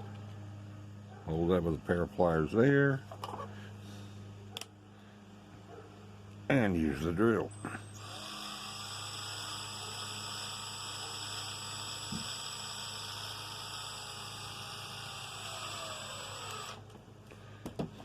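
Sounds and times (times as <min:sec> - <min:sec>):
power drill whining: 0:07.9 - 0:17.0.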